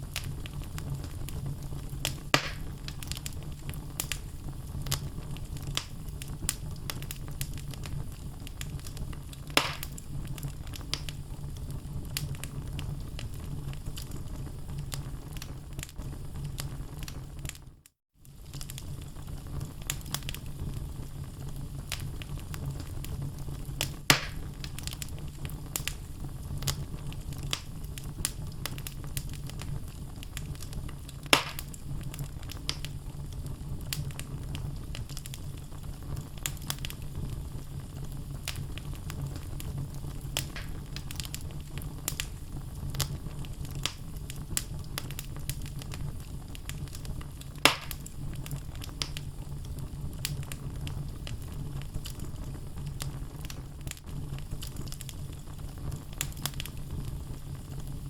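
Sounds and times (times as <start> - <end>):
loud fire pops: 0.0 - 17.6, 18.3 - 58.0
low rumble of flames: 0.0 - 58.0
logs crackling: 0.1 - 11.2, 23.8 - 29.7, 30.3 - 32.9, 36.4 - 37.4, 38.4 - 49.2.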